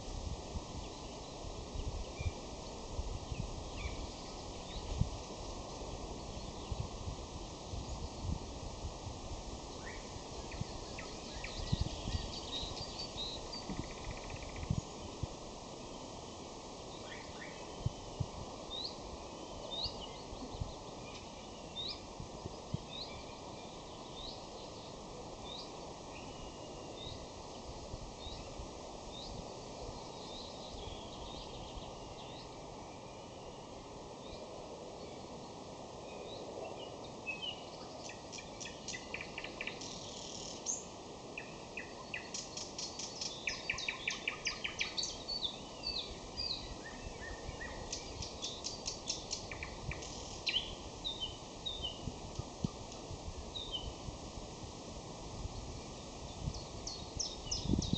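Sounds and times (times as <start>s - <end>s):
nightingale singing: 9.8s - 14.9s, 36.1s - 52.1s, 56.3s - 57.9s.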